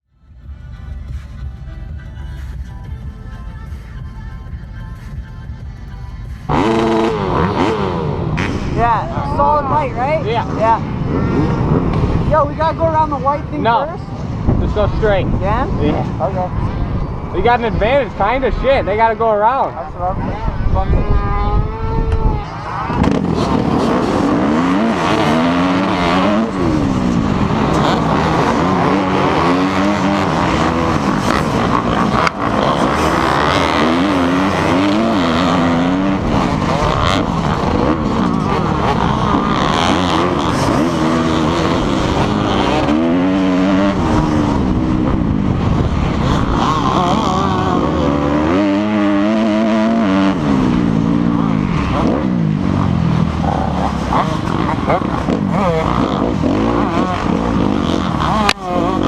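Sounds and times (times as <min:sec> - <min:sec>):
dirt bike engine revving: 0:00.2 - 0:59.0.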